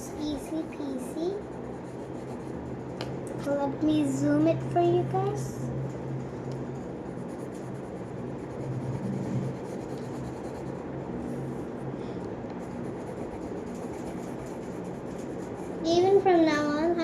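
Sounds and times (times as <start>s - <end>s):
low hum: 0.0s - 17.0s
pencil rubbing on paper: 0.1s - 3.0s, 7.1s - 10.8s, 12.6s - 15.8s.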